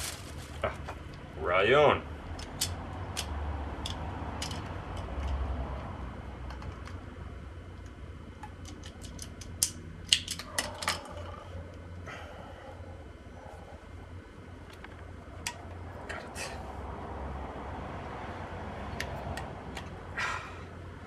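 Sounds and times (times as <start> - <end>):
steady low hum: 0.0 - 21.0
small hard parts clicking: 2.3 - 5.7, 7.7 - 11.5.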